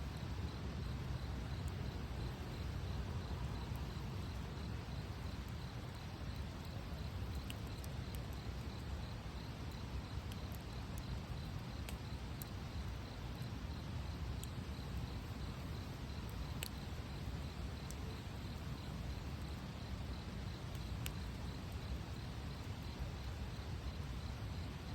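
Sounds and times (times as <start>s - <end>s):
wood fire burning: 0.0s - 24.1s
crackles and pops of wood: 5.3s - 9.0s, 9.7s - 12.5s.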